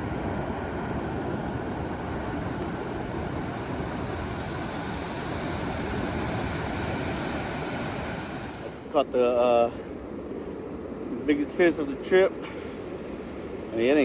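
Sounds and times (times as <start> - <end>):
wind buffeting microphone: 0.0 - 8.9
ocean surf: 0.0 - 14.0.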